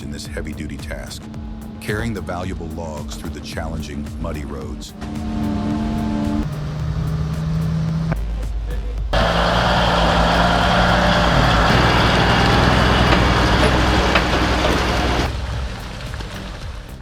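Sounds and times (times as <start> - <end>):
rush of mechanical noise: 4.9 - 17.0
truck diesel engine running: 4.9 - 17.0.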